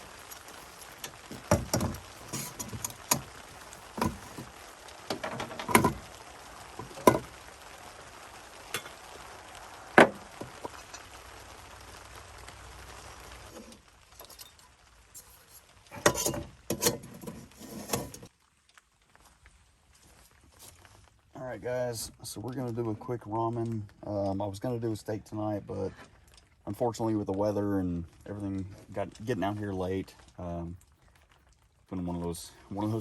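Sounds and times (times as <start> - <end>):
camp gear clinking and knocking: 0.0 - 4.5, 5.1 - 6.1, 6.8 - 7.3, 15.2 - 18.3
rain hiss: 0.0 - 33.0.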